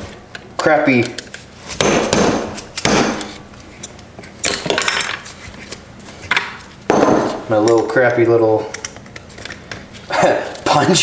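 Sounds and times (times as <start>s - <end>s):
hammer striking metal punch: 1.8s - 3.4s.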